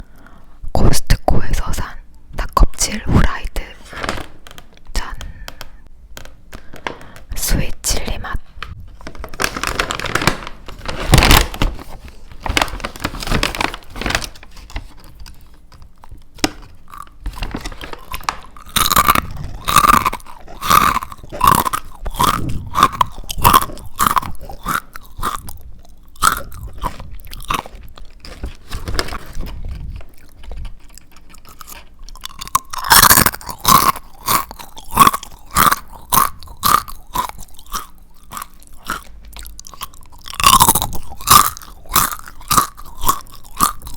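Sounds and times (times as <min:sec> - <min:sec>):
crunchy chewing of fried chicken: 0:14.2 - 0:43.9.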